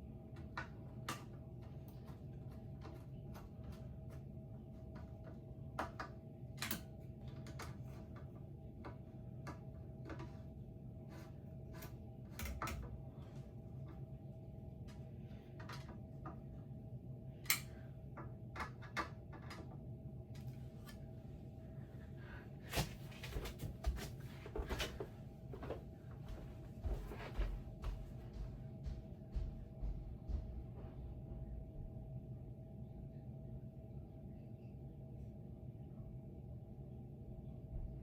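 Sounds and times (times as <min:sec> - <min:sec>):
steady low hum: 0:00.0 - 0:38.0
fan parts clicking and tapping: 0:00.1 - 0:14.2, 0:14.8 - 0:16.6, 0:17.4 - 0:21.0.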